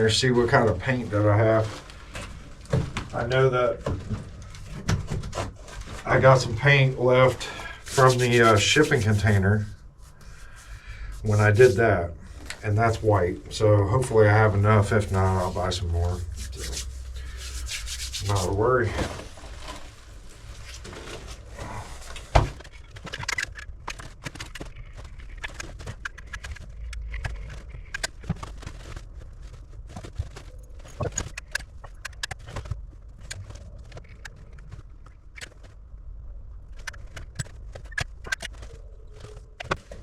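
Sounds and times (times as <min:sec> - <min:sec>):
low rumble: 0:10.4 - 0:22.3
clicks taps and rustling: 0:29.9 - 0:35.7.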